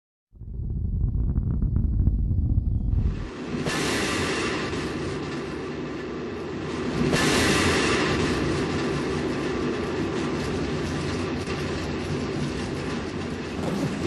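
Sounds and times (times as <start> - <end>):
rocket engine roar: 0.4 - 9.8.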